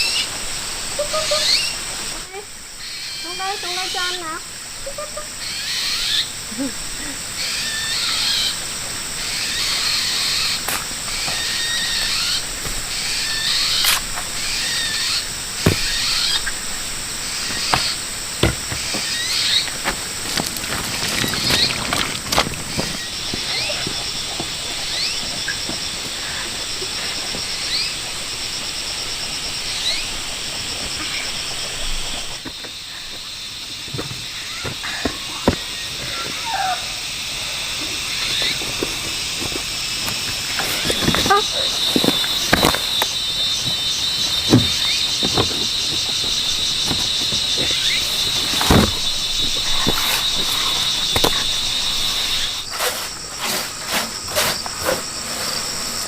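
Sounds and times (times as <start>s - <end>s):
steady high hiss: 0.0s - 20.3s
high insect drone: 0.0s - 56.0s.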